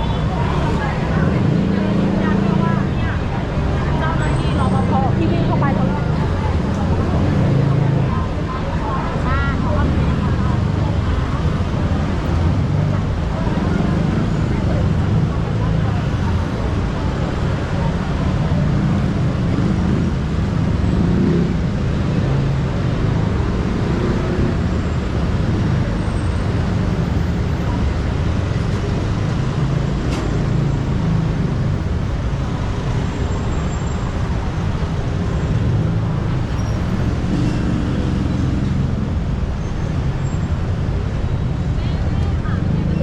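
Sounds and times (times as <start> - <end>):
road traffic drone: 0.0 - 43.0.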